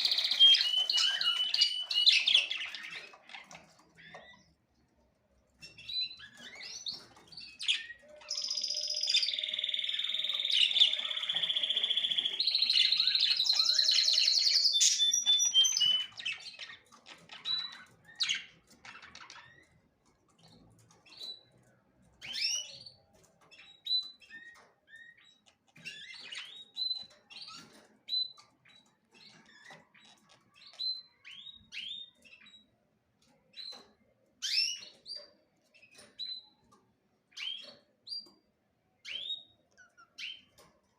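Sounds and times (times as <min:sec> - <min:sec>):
bird warbling song: 0:00.0 - 0:04.5, 0:05.6 - 0:19.7
songbirds chirping: 0:00.0 - 0:40.9.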